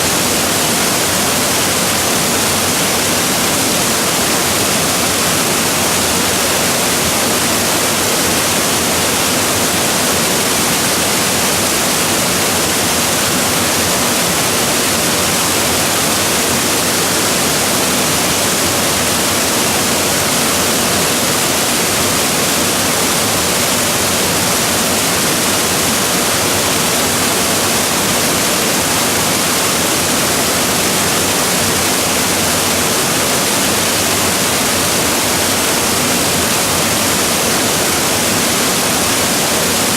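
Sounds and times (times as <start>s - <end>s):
waterfall crashing: 0.0s - 39.9s.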